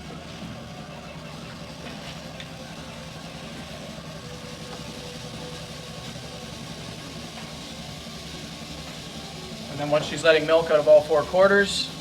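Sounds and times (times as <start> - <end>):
milking machine hum: 0.0 - 12.0.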